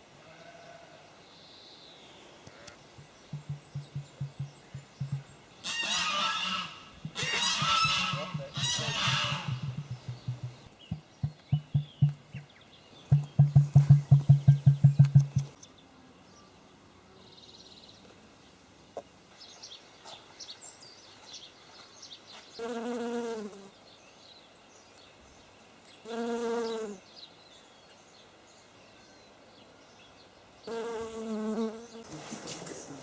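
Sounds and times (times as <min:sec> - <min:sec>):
insect buzzing: 0:03.0 - 0:12.5, 0:22.6 - 0:23.7, 0:26.1 - 0:27.0, 0:30.7 - 0:32.1.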